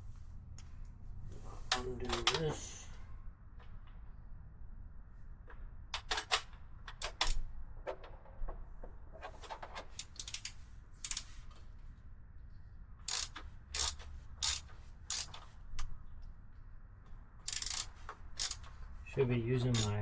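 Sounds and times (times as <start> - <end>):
ratchet wrench clicking: 10.0 - 11.4, 13.0 - 15.9, 17.4 - 18.9, 19.7 - 20.0.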